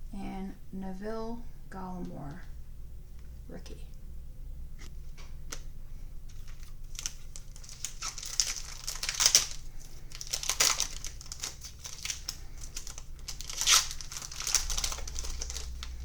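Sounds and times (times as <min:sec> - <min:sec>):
plastic wrapper crinkling: 0:05.2 - 0:16.0
wrapper tearing open: 0:06.4 - 0:16.0.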